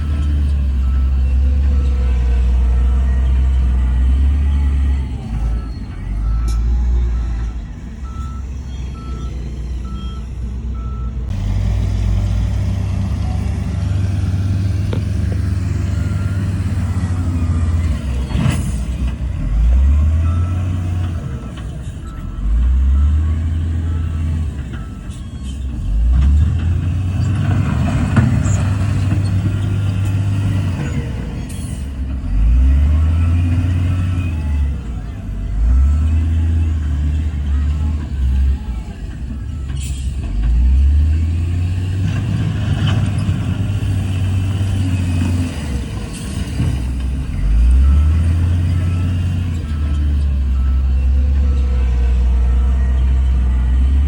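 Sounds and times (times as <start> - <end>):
reversing alarm beeping: 0.0 - 11.4, 13.1 - 26.0, 42.8 - 54.0
diesel machinery engine revving: 0.0 - 54.0.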